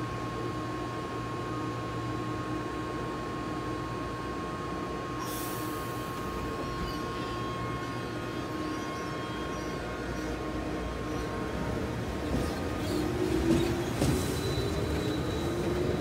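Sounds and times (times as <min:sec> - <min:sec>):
electric train hum: 0:00.0 - 0:16.0
train starting to roll: 0:07.8 - 0:16.0.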